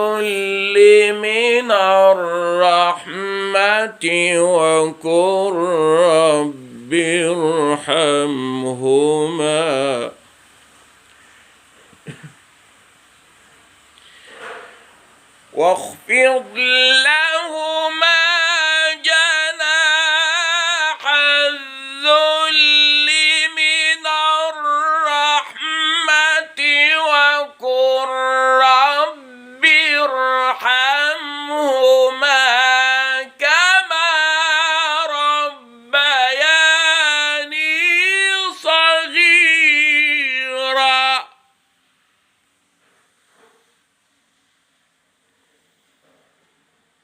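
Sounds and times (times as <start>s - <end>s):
man reciting melodically: 0.0s - 10.2s, 15.5s - 41.4s.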